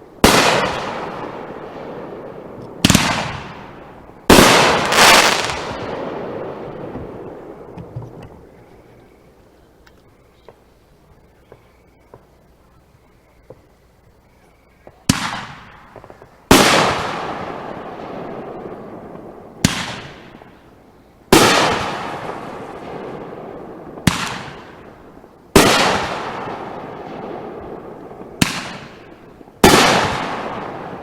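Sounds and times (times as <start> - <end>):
fireworks bangs echoing: 0.0 - 8.6, 14.9 - 20.6, 21.3 - 31.0
fireworks popping: 2.5 - 9.1, 14.8 - 17.3.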